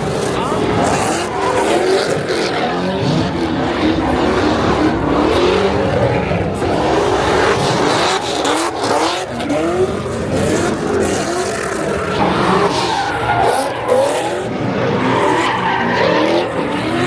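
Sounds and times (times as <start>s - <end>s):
car engine at high revs: 0.0s - 17.0s
tyres squealing and hissing: 11.6s - 17.0s.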